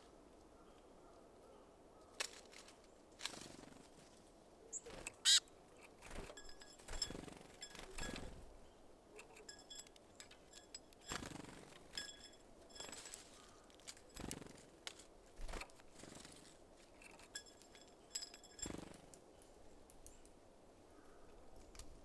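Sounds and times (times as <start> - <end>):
bird wings fluttering: 2.2 - 4.2, 4.8 - 8.5, 10.5 - 19.2
quick high bird chirps: 4.8 - 5.5.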